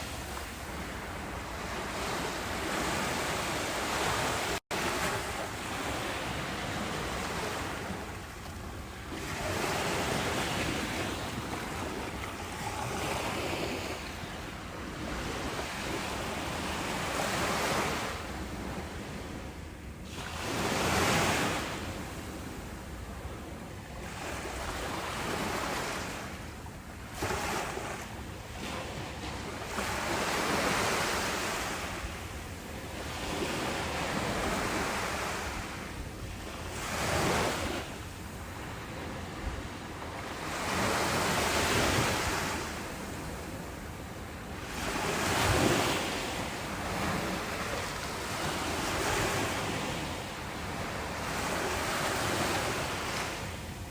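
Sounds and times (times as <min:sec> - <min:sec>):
ocean waves breaking on shore: 0:00.0 - 0:53.9.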